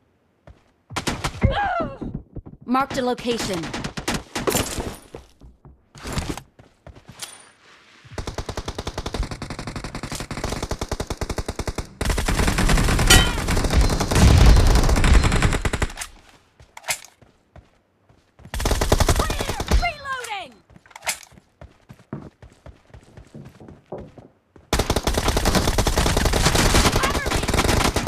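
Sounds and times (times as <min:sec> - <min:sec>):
video game automatic gunfire: 0:24.7 - 0:28.0.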